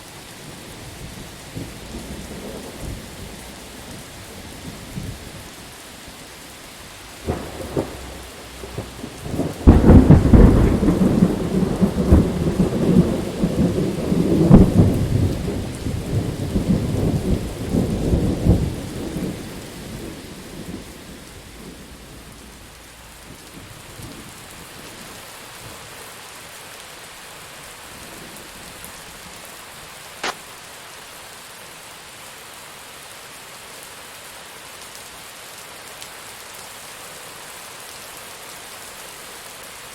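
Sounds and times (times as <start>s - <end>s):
steady rain: 0.0s - 39.9s
rolling thunderclap: 7.2s - 24.3s
sharp tick: 30.2s - 30.4s
small cracks: 30.2s - 30.4s.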